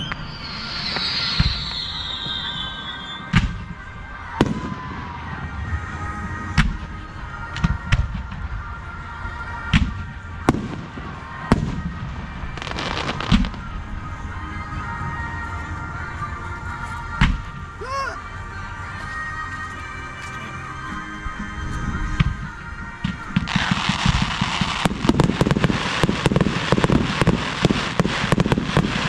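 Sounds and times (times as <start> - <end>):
fireworks bangs: 0.0 - 8.6, 9.7 - 13.8, 22.2 - 29.0
fireworks crackling: 0.0 - 18.5, 21.8 - 29.0.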